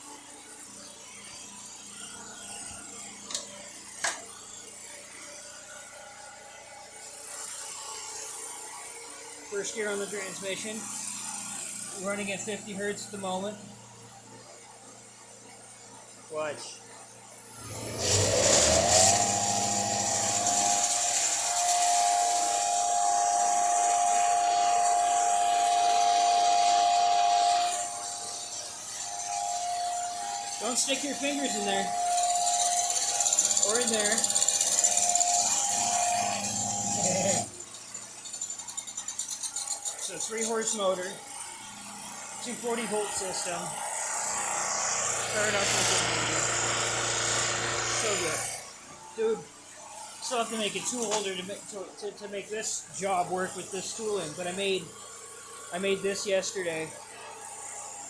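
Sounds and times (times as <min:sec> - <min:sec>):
metal lathe running: 0:09.6 - 0:13.7, 0:17.6 - 0:49.4, 0:50.0 - 0:58.0
electric motor high whine: 0:17.5 - 0:58.0.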